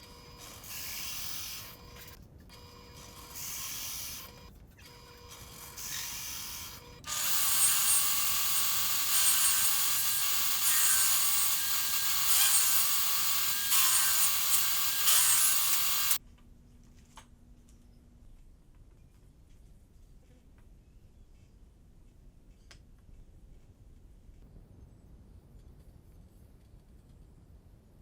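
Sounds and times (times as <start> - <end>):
tool rasping on wood: 5.2 - 16.2.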